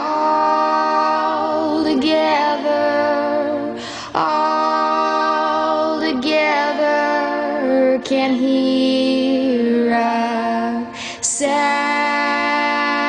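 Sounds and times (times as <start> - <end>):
woman singing long notes: 0.0 - 13.0
singer breath: 3.7 - 4.2, 10.9 - 11.3.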